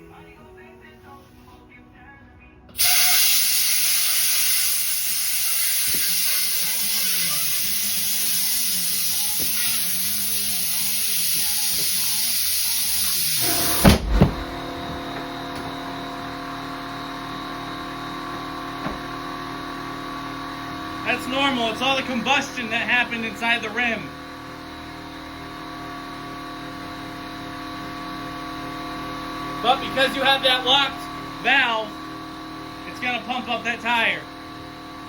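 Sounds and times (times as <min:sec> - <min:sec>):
loud hiss of rushing gas: 0:02.8 - 0:06.1
heavy thumps: 0:13.4 - 0:15.7.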